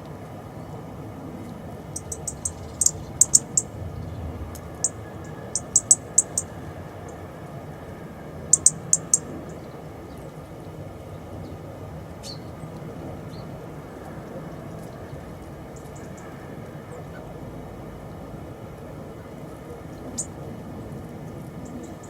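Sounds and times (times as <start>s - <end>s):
low background hum: 0.0s - 22.0s
songbird chip calls: 1.5s - 7.2s, 8.5s - 10.3s, 12.2s - 13.5s, 19.9s - 20.4s.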